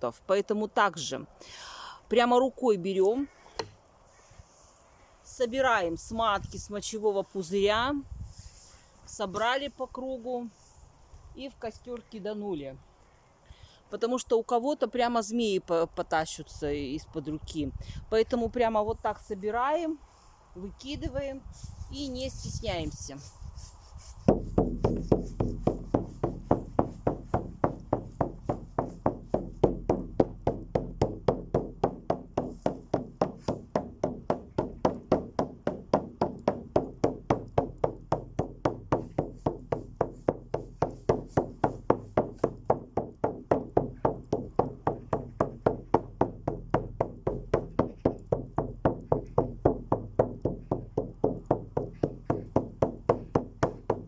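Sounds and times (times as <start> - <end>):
drum beating steadily: 24.3 - 54.0.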